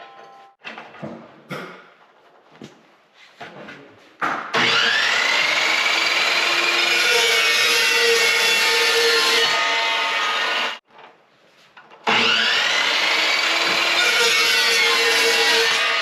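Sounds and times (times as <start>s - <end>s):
chop saw cutting steel: 4.5s - 10.8s, 12.0s - 16.0s.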